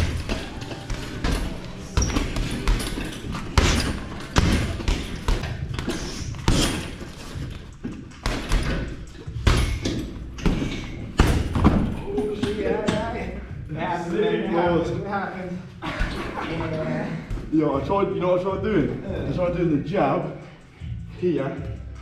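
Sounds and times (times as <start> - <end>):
strikes thudding into pads: 0.0 - 7.1, 8.2 - 11.9.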